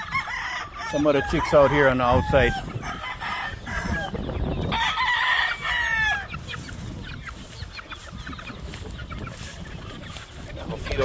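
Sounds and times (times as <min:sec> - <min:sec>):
rooster crowing: 0:00.0 - 0:06.3
chickens clucking: 0:00.0 - 0:11.0.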